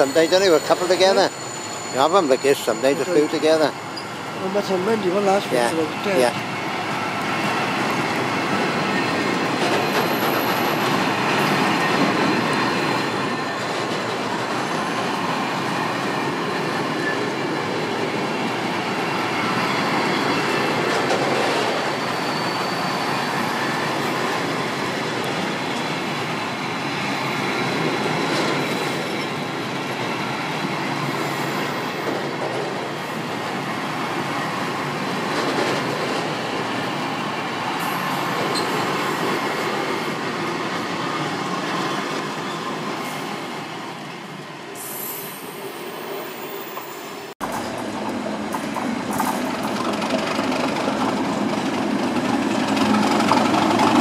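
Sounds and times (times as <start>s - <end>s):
thin wheel squeals: 0.0s - 4.2s, 21.8s - 23.8s
train wheels rumbling on rails: 0.0s - 54.0s.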